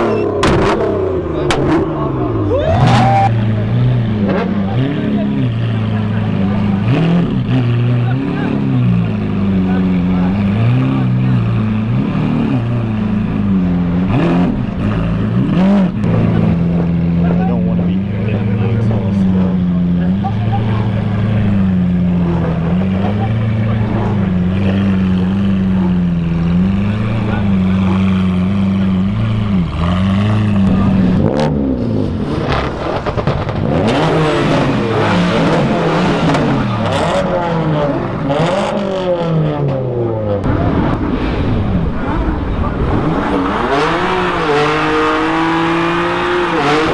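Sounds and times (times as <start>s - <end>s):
car engine revving: 0.0s - 46.9s
exhaust burst: 40.4s - 46.9s.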